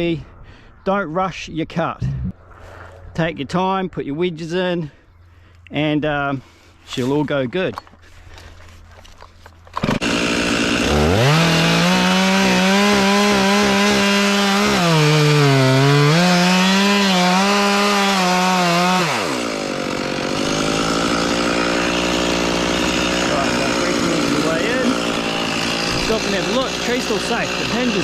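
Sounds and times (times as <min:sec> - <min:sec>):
chainsaw cutting into tree trunk: 0:09.6 - 0:28.0.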